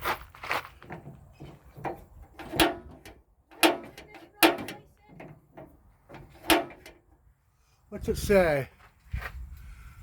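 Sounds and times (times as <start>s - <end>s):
metal grill parts clanking: 0.8s - 7.2s.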